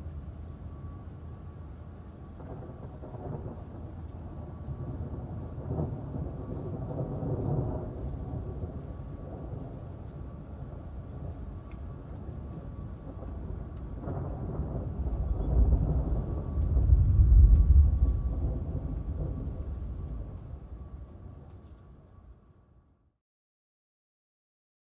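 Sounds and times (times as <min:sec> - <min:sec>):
steady rain: 0:00.0 - 0:22.8
rolling thunder: 0:02.4 - 0:11.4, 0:12.2 - 0:21.5.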